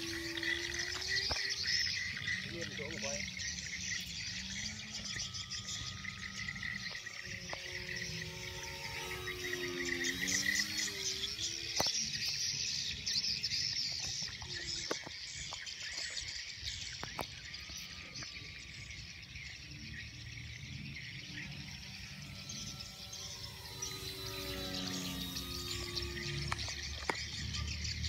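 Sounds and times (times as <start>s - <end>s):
crickets chirping: 0.0s - 28.0s
plane engine drone: 0.0s - 28.0s
sharp clicks: 25.0s - 27.5s.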